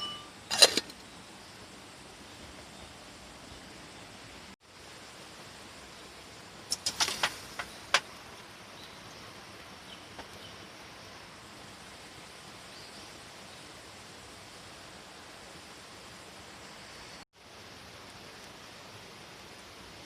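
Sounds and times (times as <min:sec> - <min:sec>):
steady rain hiss: 0:00.0 - 0:20.0
sharp clicks and knocks: 0:06.7 - 0:08.1.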